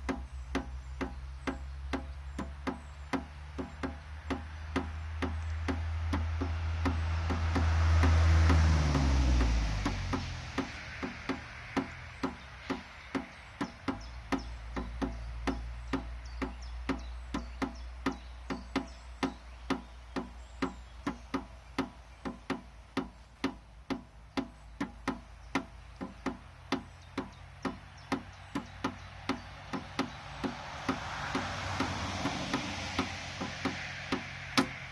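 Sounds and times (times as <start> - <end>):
rhythmic percussion tapping: 0.0 - 34.9
rushing hiss: 9.8 - 14.0, 28.1 - 34.9.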